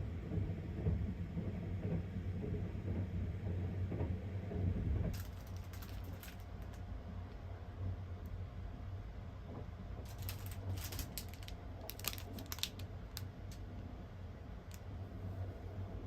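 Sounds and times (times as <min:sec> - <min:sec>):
train rumbling: 0:00.0 - 0:16.0
clicks and rustling of handling: 0:05.1 - 0:07.4, 0:10.0 - 0:13.7.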